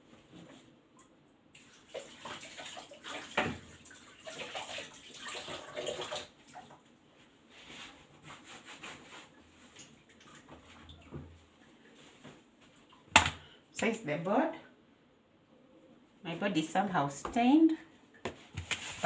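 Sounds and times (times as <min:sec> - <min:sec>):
water splashing and scrubbing: 0:01.6 - 0:06.7.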